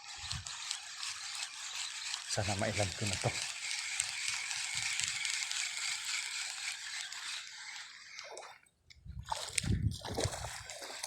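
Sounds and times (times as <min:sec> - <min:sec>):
fish splashing in water: 0:09.2 - 0:11.0.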